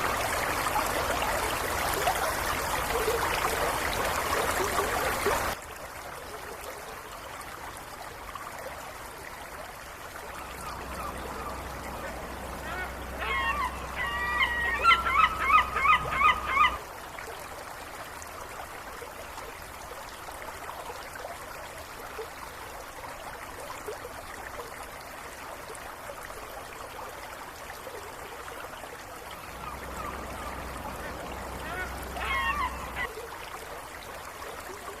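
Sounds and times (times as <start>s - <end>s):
soft hiss of water: 0.0s - 35.0s
waterfowl calling: 10.3s - 16.9s, 29.4s - 33.1s.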